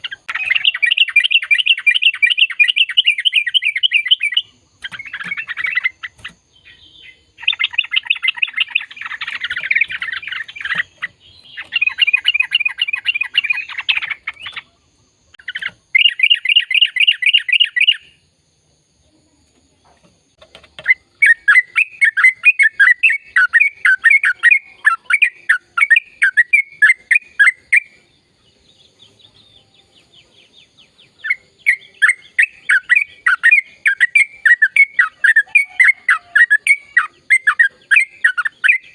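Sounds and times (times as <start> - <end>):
bird singing rapid chattering phrases: 0.0 - 18.3, 19.9 - 38.9.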